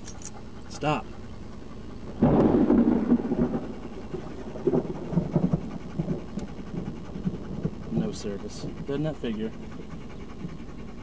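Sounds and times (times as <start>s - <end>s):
thunder crack and rumble: 2.0s - 8.8s.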